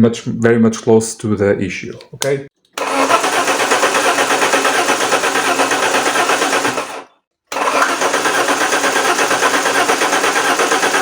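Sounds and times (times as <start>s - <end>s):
starter motor cranking engine: 2.8s - 11.0s.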